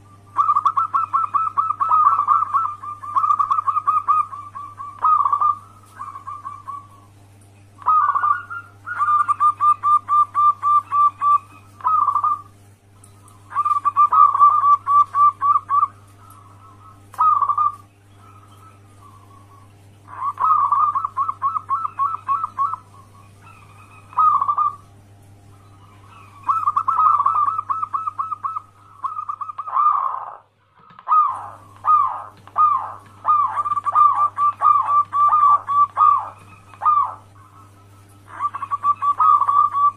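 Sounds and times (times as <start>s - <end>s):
doves cooing: 0.0s - 39.9s
steady low hum: 0.0s - 39.9s.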